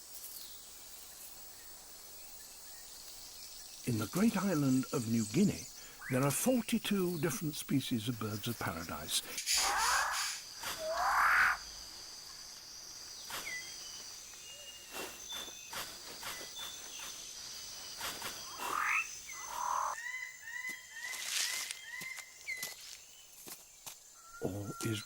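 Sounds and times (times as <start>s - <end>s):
bird calls: 3.9s - 12.4s, 13.0s - 23.2s, 24.1s - 25.0s.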